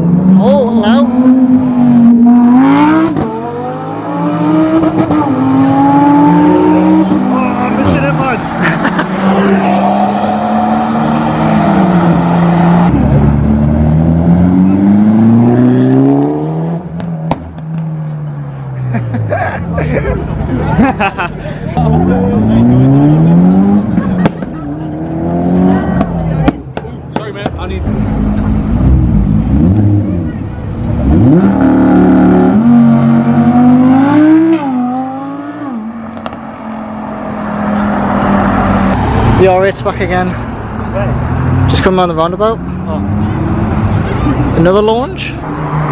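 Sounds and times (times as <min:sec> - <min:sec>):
car engine revving and accelerating: 0:00.0 - 0:17.8, 0:21.8 - 0:26.5, 0:27.9 - 0:39.8.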